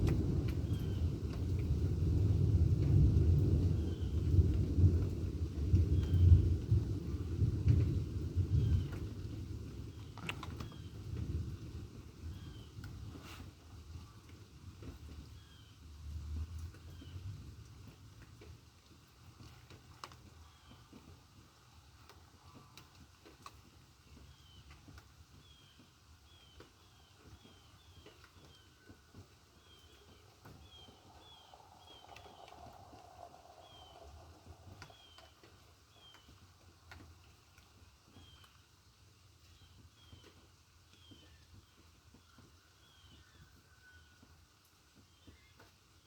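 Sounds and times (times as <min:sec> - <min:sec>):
faint bird chirping: 0:25.4 - 0:36.4
faint low rumble: 0:29.2 - 0:37.0.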